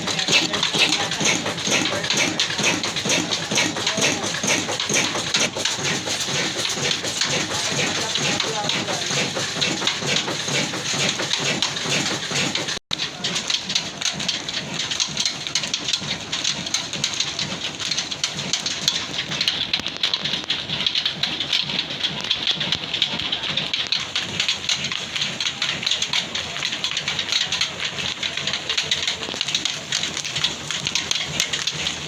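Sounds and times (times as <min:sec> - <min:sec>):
old diesel engine clattering: 0:00.0 - 0:32.0.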